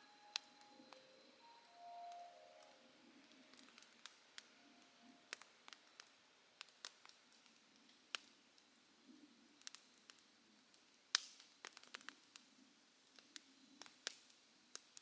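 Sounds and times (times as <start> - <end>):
campfire crackling and popping: 2.6 - 8.8, 9.6 - 15.0.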